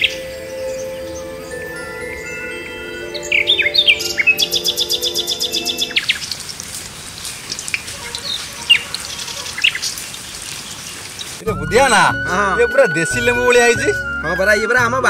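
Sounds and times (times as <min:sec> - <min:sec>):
birds chirping and trilling: 0:00.0 - 0:14.9.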